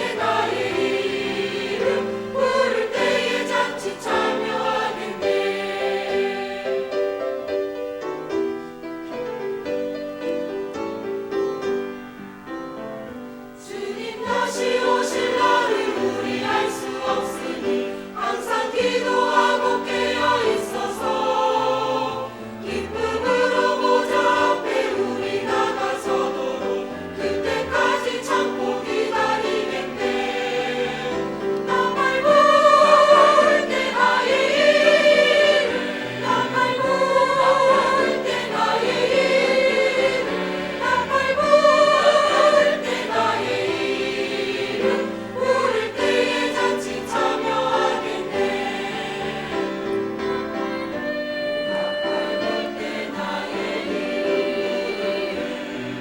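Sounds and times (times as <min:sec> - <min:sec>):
choir singing: 0:00.0 - 0:08.4, 0:13.6 - 0:56.0
tenor voice singing with vibrato: 0:50.8 - 0:56.0.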